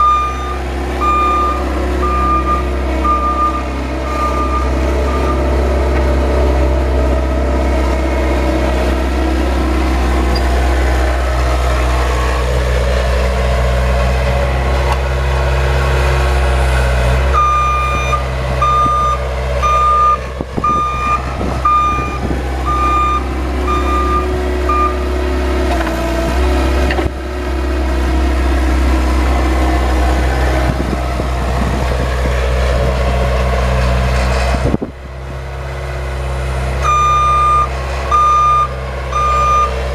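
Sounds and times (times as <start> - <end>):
vehicle engine running: 0.0 - 39.9
reverse warning beeper: 17.4 - 25.0, 36.8 - 39.8.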